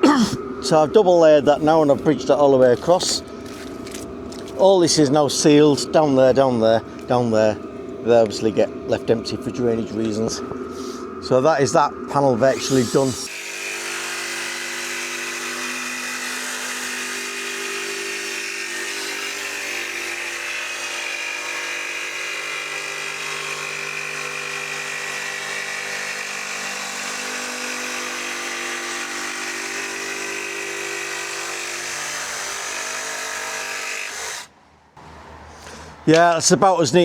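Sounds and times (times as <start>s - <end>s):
small electric motor humming: 12.3s - 34.5s.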